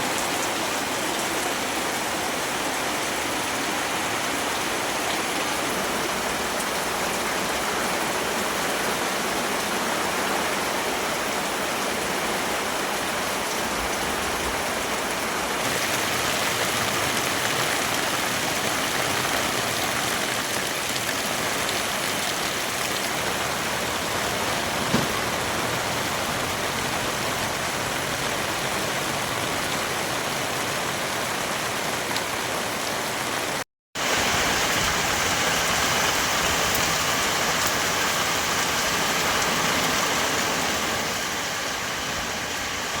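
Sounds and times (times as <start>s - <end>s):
heavy rain falling: 0.0s - 43.0s
sharp knock: 24.9s - 25.2s.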